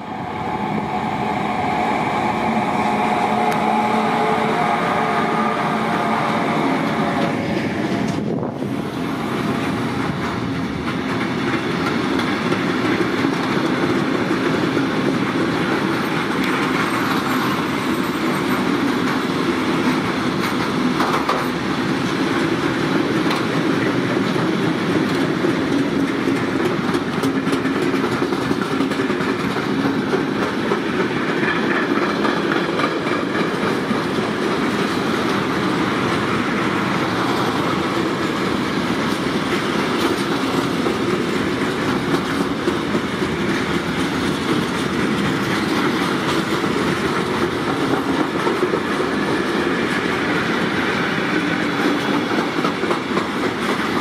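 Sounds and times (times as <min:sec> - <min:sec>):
locomotive humming tone: 0:00.0 - 0:11.9
train wheels rolling on rails: 0:00.0 - 0:54.0.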